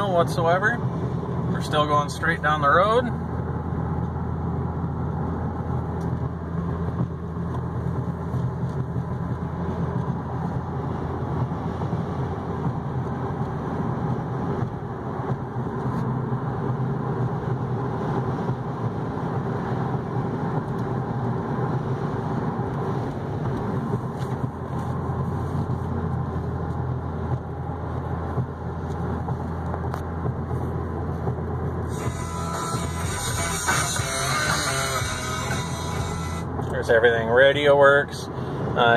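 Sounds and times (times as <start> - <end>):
tyre and road noise: 0.0 - 38.9
low engine drone: 22.4 - 38.9.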